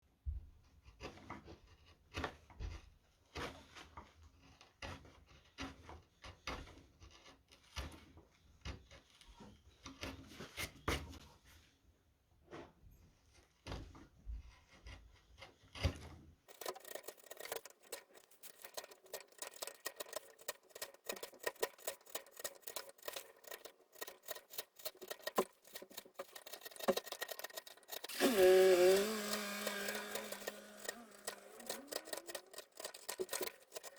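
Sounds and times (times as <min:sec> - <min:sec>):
gouge carving wood: 0:00.7 - 0:11.2, 0:13.6 - 0:33.9
squeaky scrape: 0:14.5 - 0:33.9.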